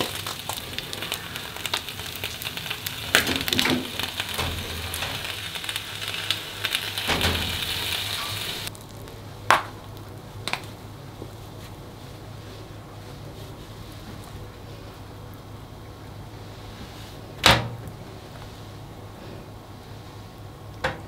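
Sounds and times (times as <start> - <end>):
egg and bacon sizzling: 0.0 - 11.0.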